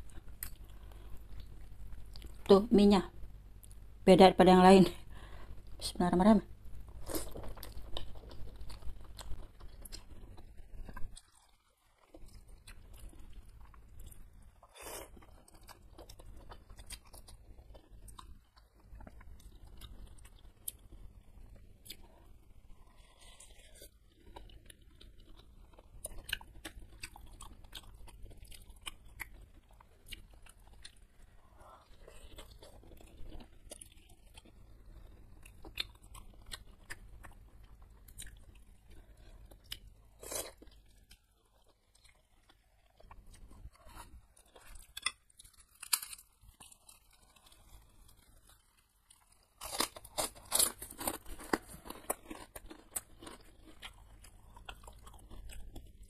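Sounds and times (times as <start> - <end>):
close-miked chewing: 6.9 - 56.0
crunching: 43.4 - 55.9.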